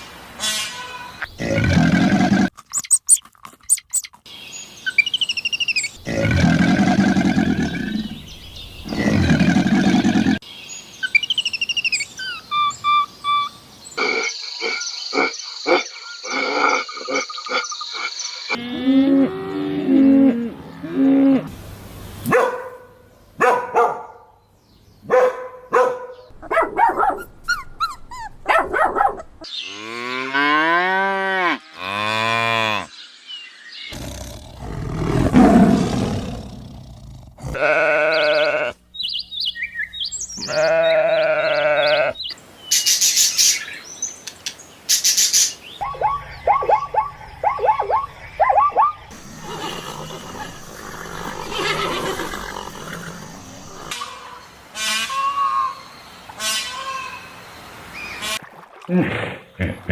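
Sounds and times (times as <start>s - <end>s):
animal calls: 12.2s - 21.5s, 45.8s - 55.8s
cattle mooing: 37.4s - 38.7s.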